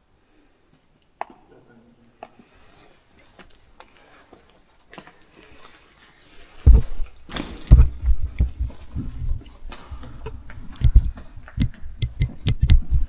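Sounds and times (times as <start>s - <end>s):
person walking with low thuds: 6.6s - 13.0s.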